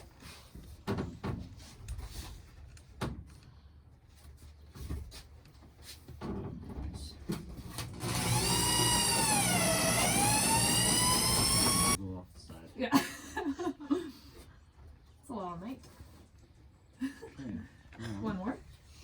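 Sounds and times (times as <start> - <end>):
power drill whining: 8.0 - 12.0.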